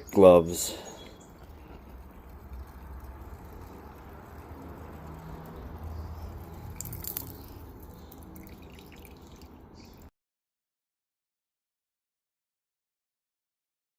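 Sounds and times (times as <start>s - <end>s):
liquid dripping and bubbling: 0.8s - 10.1s.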